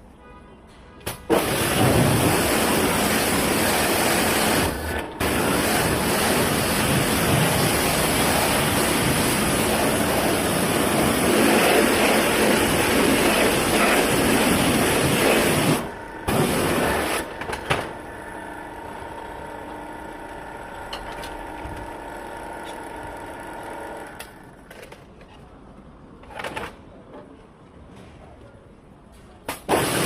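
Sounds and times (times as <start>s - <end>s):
loud rushing machine noise: 1.3s - 20.8s
motor hum with whine: 3.6s - 24.7s.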